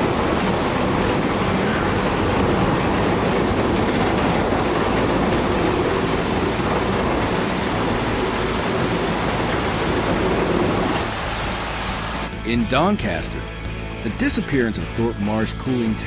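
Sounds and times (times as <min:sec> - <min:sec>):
loud steady rumbling: 0:00.0 - 0:12.8.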